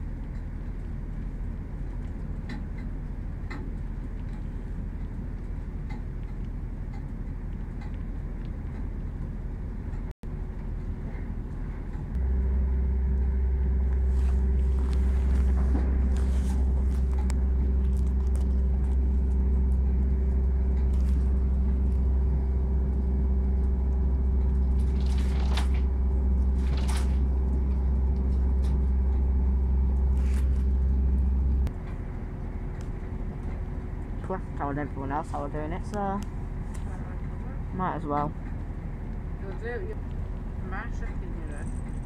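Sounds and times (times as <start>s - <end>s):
diesel train drone inside carriage: 0.0s - 42.0s.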